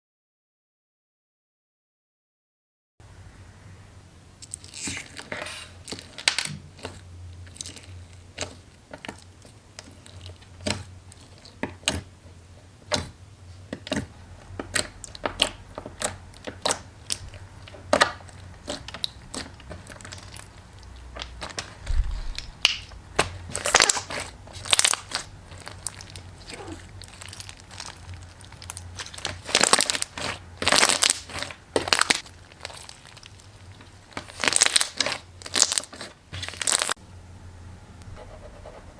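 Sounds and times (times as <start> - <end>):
crafted material being crushed: 13.7 - 37.0.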